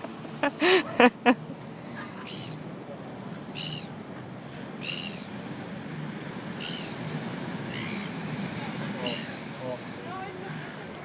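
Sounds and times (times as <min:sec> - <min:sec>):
gulls calling: 0:02.0 - 0:02.6, 0:03.5 - 0:04.0, 0:06.6 - 0:07.0, 0:07.6 - 0:08.2, 0:09.0 - 0:09.5.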